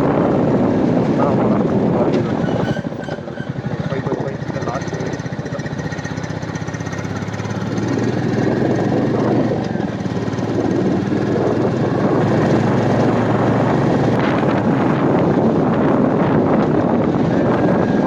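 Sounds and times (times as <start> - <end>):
wind rushing on microphone: 0.0 - 5.7, 6.4 - 18.0
motorcycle engine running: 0.0 - 18.0.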